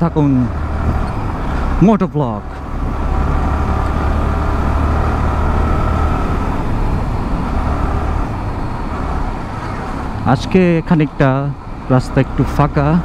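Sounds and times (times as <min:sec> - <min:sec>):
motorcycle engine cruising: 0:00.0 - 0:13.0
road noise: 0:00.0 - 0:13.0
wind noise: 0:02.5 - 0:10.2.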